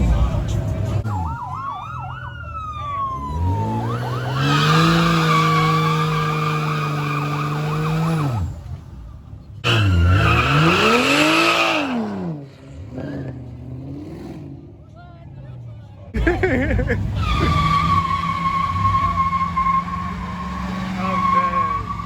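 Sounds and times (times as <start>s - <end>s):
car engine revving: 0.0s - 22.0s
siren winding down: 1.1s - 8.1s, 17.3s - 22.0s
tyres screeching: 3.4s - 8.5s, 9.6s - 13.5s, 16.4s - 22.0s.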